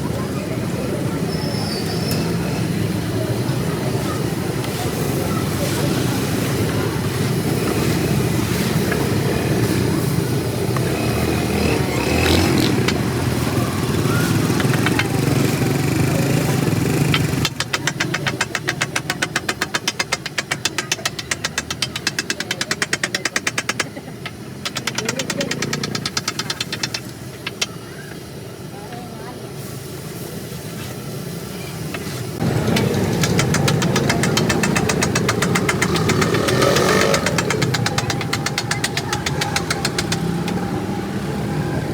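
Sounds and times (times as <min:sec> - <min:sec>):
road traffic: 0:00.0 - 0:41.9
clicks: 0:11.6 - 0:27.8, 0:31.9 - 0:40.6.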